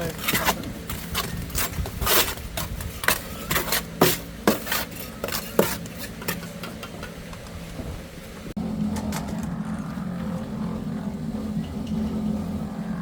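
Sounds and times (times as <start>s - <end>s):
low hum: 6.2s - 13.0s.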